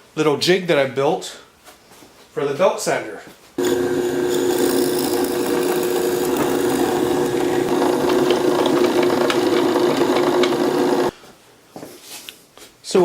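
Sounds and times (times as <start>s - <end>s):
drill press humming: 3.6s - 11.2s.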